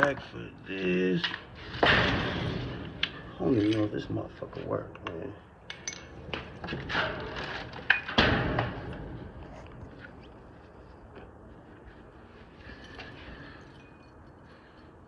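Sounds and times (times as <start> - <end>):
objects knocking and clattering: 4.9 - 9.8.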